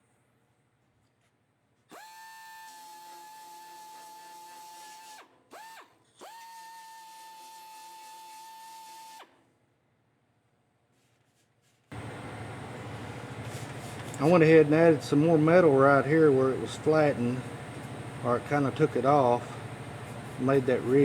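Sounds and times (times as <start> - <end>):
power tool motor whining: 1.9 - 9.2.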